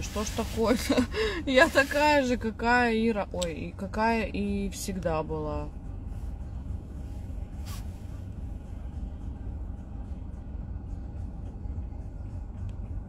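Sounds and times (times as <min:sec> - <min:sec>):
car road and engine rumble: 0:00.0 - 0:13.0
brief hiss: 0:07.6 - 0:08.2.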